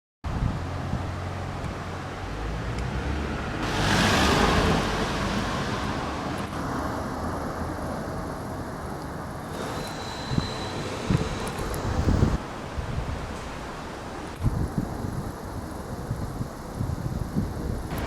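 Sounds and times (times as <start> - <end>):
street traffic rumbling: 0.2 - 18.0
vehicle passing close by: 0.6 - 8.6.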